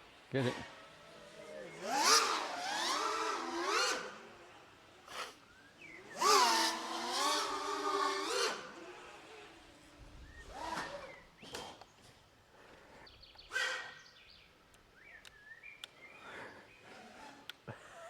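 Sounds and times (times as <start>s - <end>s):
birds chirping and whistling: 5.1s - 6.3s, 10.2s - 12.2s, 13.0s - 17.1s.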